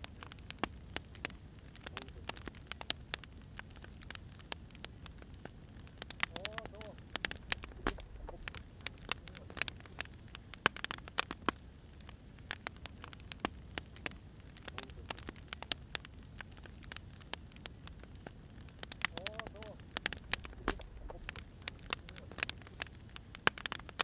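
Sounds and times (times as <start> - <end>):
wood fire crackling: 0.0 - 24.0
low steady rumble: 5.0 - 10.5, 17.6 - 23.3.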